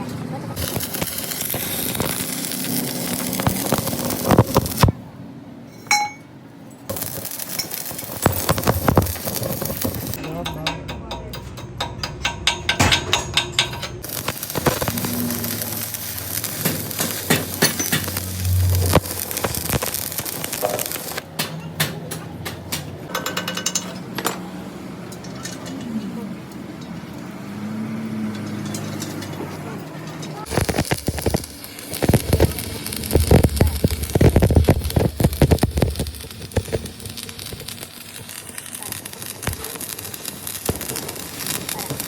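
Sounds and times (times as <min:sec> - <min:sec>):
metal clinking and knocking: 0:05.7 - 0:06.3, 0:06.9 - 0:14.9, 0:16.6 - 0:18.4, 0:20.6 - 0:24.5
short metallic ring: 0:05.7 - 0:06.3.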